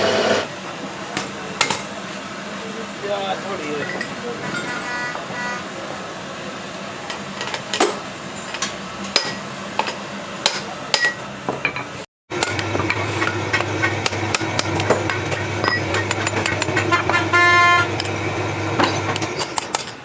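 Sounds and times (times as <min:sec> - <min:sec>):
hammer striking metal: 0:09.1 - 0:17.4.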